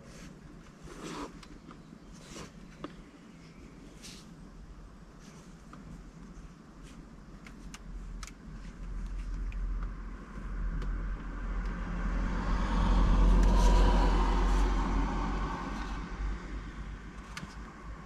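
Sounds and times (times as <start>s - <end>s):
motor vehicle driving past: 11.4s - 17.0s.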